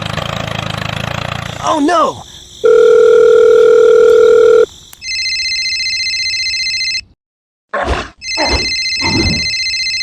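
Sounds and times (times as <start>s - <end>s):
steady telephone tone: 2.6s - 7.0s
warbling telephone ring: 2.7s - 7.0s, 8.2s - 10.0s.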